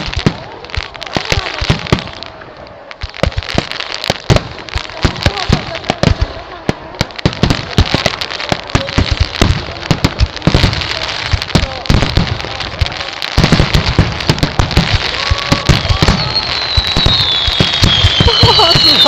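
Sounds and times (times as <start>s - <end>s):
fireworks bangs and crackling: 0.0s - 19.0s
firework whistle gliding down: 15.4s - 19.0s.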